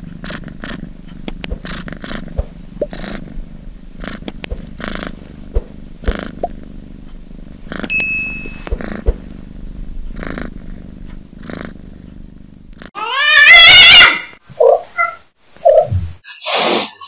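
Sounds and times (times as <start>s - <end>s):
cat purring: 0.0s - 13.0s
cat meowing loudly: 13.0s - 14.3s.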